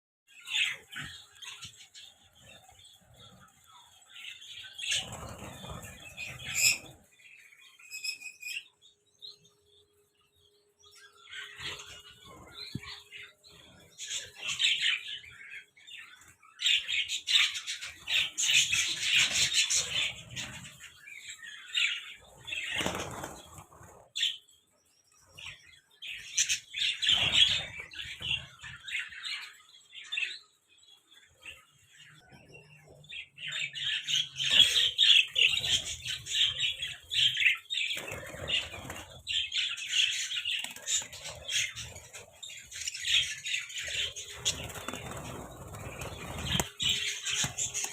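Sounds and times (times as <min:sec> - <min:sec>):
budgerigars chattering and chirping: 0:00.4 - 0:09.3, 0:10.8 - 0:24.6, 0:25.2 - 0:47.9.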